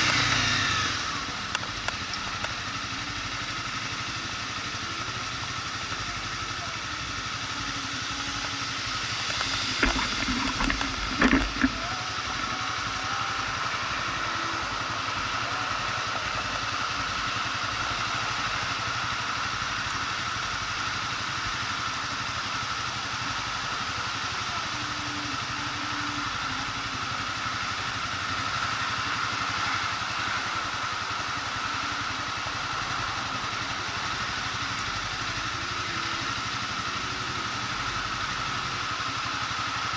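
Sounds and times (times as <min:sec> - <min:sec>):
motorcycle engine running: 0:00.0 - 0:39.9
sharp knocks or rattles: 0:09.3 - 0:11.8.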